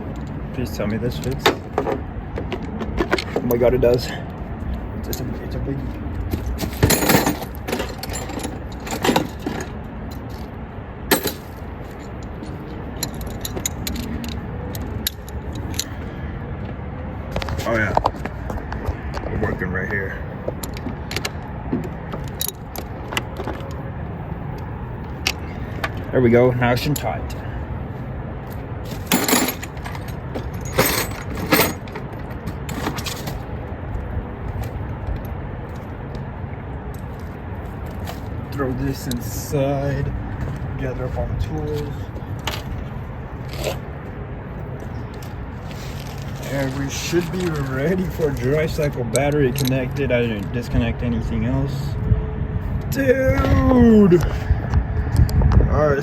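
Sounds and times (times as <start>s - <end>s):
metal tools clinking: 6.3s - 10.5s, 11.1s - 16.1s, 22.1s - 23.8s, 28.8s - 33.5s, 45.1s - 50.6s
metal hand tools clinking: 11.1s - 14.4s, 28.9s - 33.4s.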